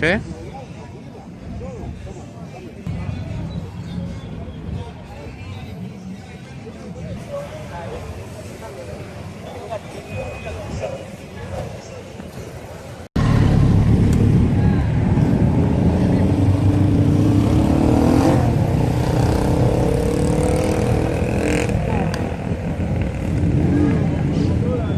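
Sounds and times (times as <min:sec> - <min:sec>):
motorcycle engine accelerating: 0:13.2 - 0:24.4.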